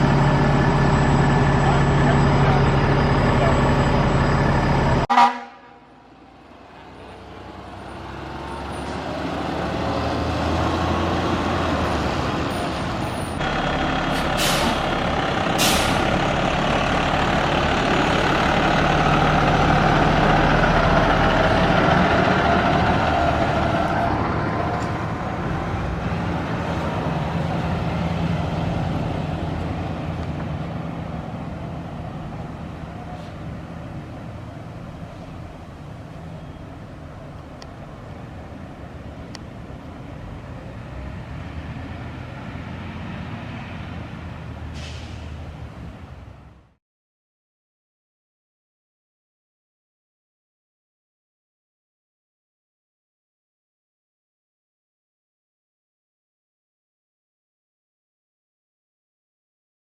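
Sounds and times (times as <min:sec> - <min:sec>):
truck engine passing: 0:00.0 - 0:46.8
air brake hisses: 0:14.2 - 0:14.9, 0:15.6 - 0:16.1, 0:44.7 - 0:45.4.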